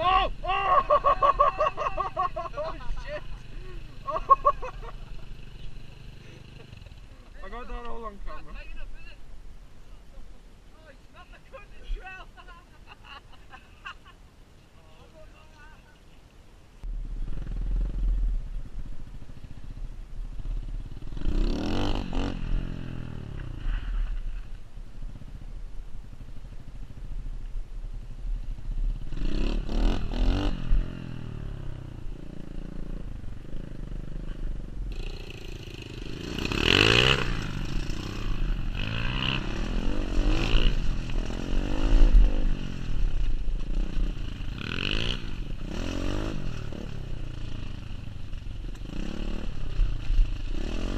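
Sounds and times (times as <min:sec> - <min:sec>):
small motorbike engine revving: 0:20.4 - 0:24.2, 0:34.3 - 0:50.9.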